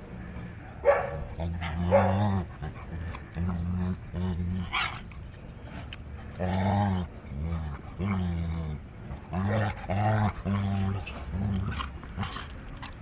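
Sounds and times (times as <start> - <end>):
dog grumbling: 1.1 - 4.8, 6.4 - 13.0.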